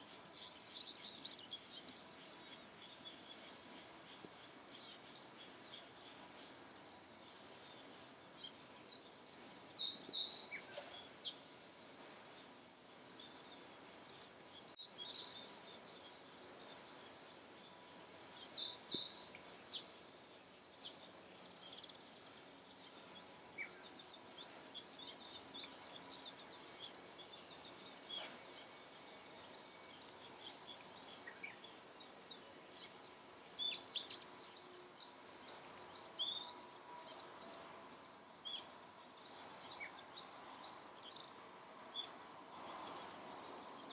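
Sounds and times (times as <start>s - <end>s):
bird song phrases: 0.0s - 43.9s
birds chirping: 0.0s - 43.9s.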